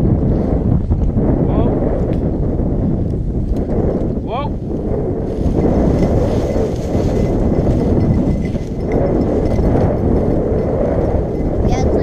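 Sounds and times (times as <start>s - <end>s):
footsteps through dry stalks: 5.4s - 9.6s.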